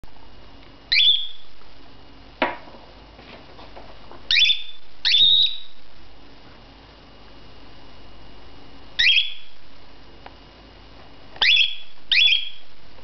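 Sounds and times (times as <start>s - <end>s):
cockatiel screeching: 4.3s - 5.7s.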